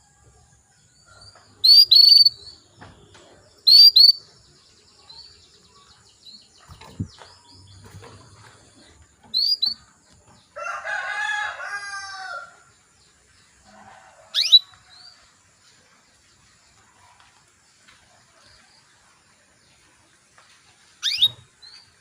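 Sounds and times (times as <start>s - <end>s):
canary chirps and whistled call: 1.6s - 2.6s, 3.6s - 4.3s, 9.3s - 9.9s, 14.3s - 14.8s, 21.0s - 21.5s
rooster crowing: 10.6s - 12.7s.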